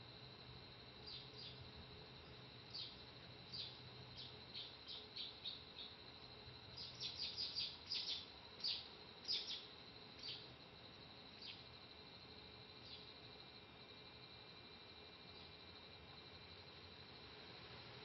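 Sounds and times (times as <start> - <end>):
faint bird chirps: 1.0 - 1.6, 2.3 - 6.0, 6.7 - 10.5, 11.4 - 11.7, 12.8 - 13.2.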